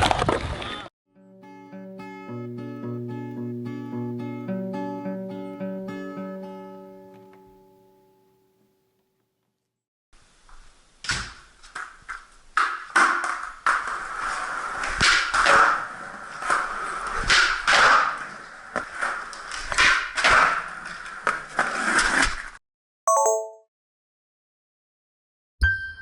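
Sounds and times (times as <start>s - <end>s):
skateboard clacks and knocks: 11.7s - 22.2s
short electronic beep: 23.1s - 23.7s.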